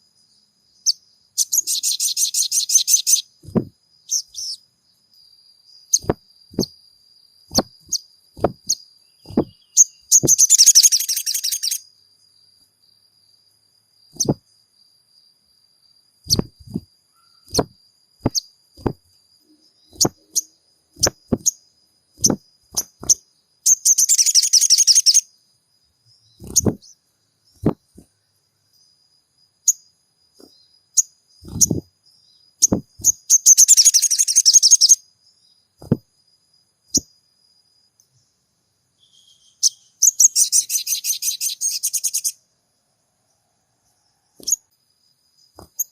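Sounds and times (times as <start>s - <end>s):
bird chattering trill: 0.8s - 4.6s, 7.5s - 11.8s, 14.2s - 14.4s, 16.3s - 17.7s, 22.2s - 25.2s, 26.4s - 26.9s, 32.6s - 35.0s, 39.6s - 42.3s
bird calling: 14.2s - 14.4s, 26.4s - 26.9s.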